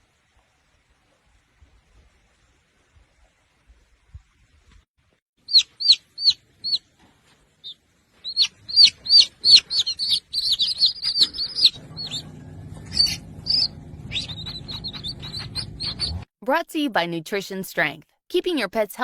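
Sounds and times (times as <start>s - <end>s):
small bird chirping: 5.4s - 6.9s, 7.6s - 16.3s.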